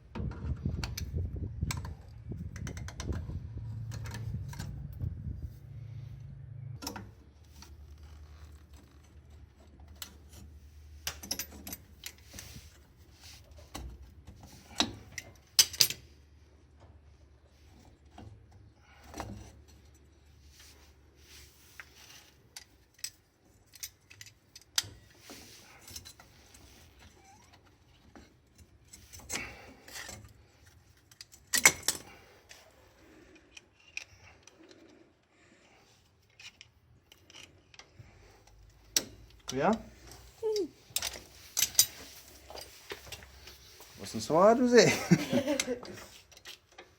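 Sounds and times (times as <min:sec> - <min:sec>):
metal tools clicking and clinking: 0:11.0 - 0:12.4, 0:14.8 - 0:16.0, 0:25.7 - 0:32.6, 0:36.3 - 0:43.4.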